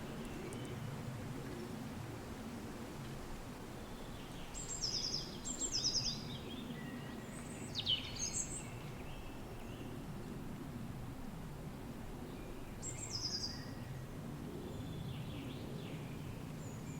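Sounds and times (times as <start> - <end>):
wind blowing with low rumble: 0.0 - 16.9
songbird trills and chirps: 4.2 - 9.8.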